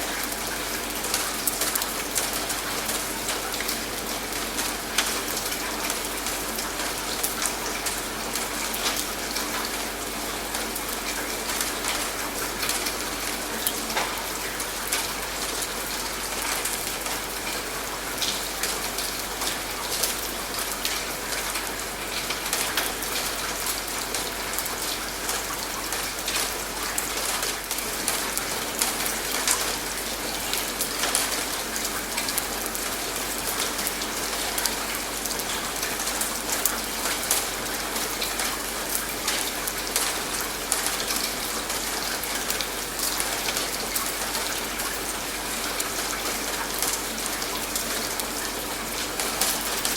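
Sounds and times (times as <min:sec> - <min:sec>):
raindrops ticking on a surface: 0:00.0 - 0:49.9
steady rain falling: 0:00.0 - 0:49.9.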